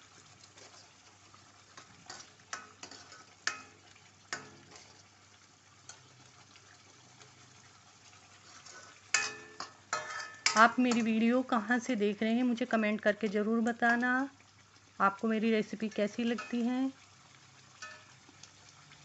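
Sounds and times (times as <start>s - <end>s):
gravy sizzling in a pan: 0.0s - 19.0s
spoon knocking against pan: 9.1s - 11.2s, 17.8s - 18.2s.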